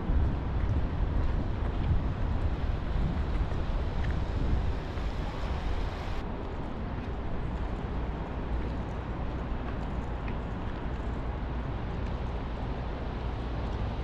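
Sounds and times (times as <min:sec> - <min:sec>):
traffic rumble: 0:00.0 - 0:14.0
wind buffeting microphone: 0:00.0 - 0:14.0
rain: 0:00.1 - 0:06.2.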